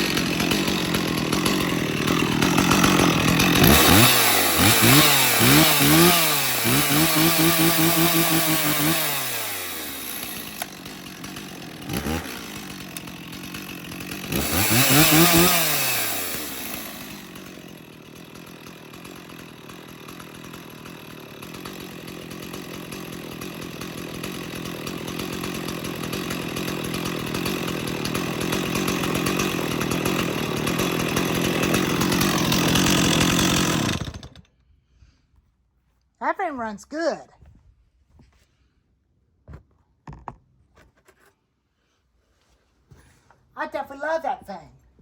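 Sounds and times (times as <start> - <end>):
chainsaw revving: 0.0 - 34.5
chainsaw idling: 0.0 - 35.2, 43.6 - 44.9.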